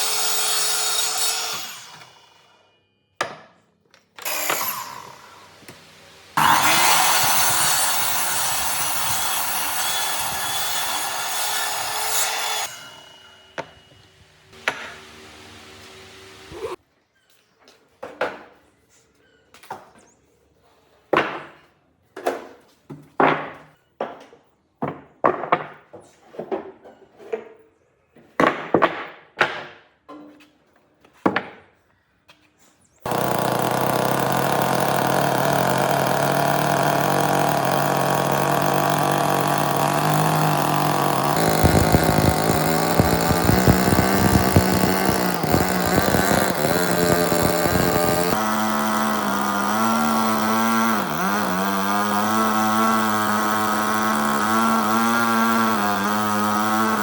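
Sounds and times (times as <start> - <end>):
power tool running: 0.0 - 2.6, 4.2 - 16.8, 33.1 - 57.0.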